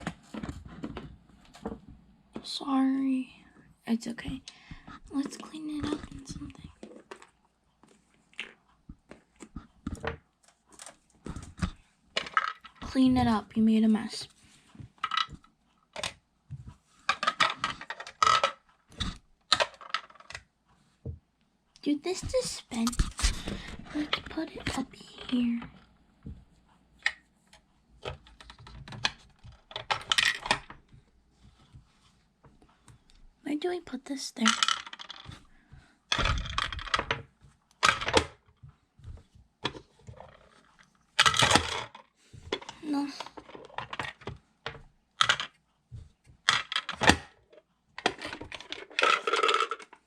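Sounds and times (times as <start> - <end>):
plastic toy pieces clattering: 12.2 - 12.9, 15.0 - 15.4, 17.1 - 20.5, 28.0 - 30.8, 34.4 - 35.4, 36.1 - 38.5, 39.6 - 45.6, 46.4 - 47.4, 48.0 - 50.0
plastic toy pieces clicking: 17.1 - 20.5, 34.4 - 35.4, 45.2 - 45.5, 46.5 - 47.3, 48.0 - 50.0.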